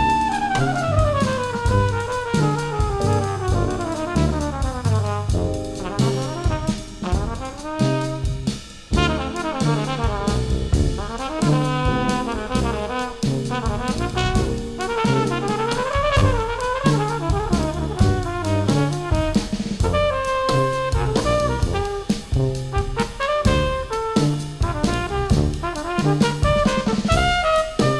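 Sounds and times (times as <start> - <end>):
drum kit beat: 0.0 - 27.9
jazz brass ensemble playing: 0.0 - 27.9.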